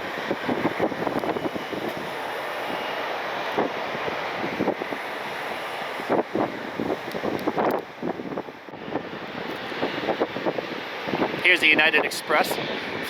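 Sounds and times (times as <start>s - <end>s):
jet engines running: 0.0s - 13.0s
wind buffeting microphone: 0.0s - 13.0s.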